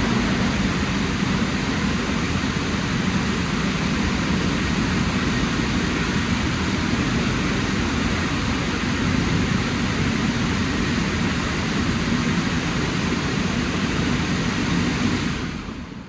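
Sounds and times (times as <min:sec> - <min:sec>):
car wash dryer blowers: 0:00.0 - 0:05.0.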